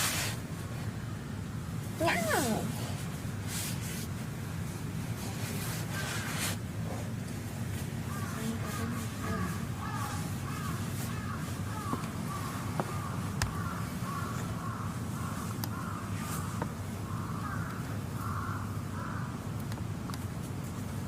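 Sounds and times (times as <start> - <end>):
crows cawing: 8.1 - 19.4.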